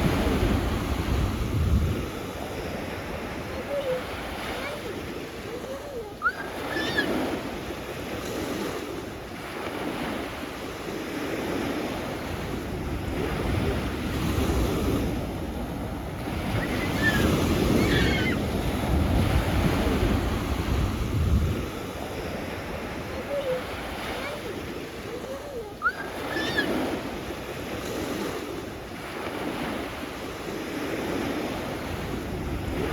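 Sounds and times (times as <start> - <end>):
wind buffeting microphone: 0.0 - 4.4, 11.5 - 25.3
sea waves on shore: 0.0 - 32.9.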